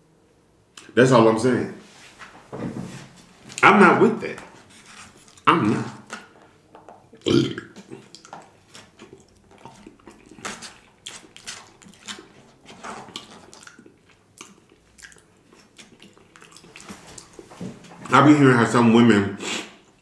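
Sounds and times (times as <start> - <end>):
man chewing wetly: 4.6 - 18.1.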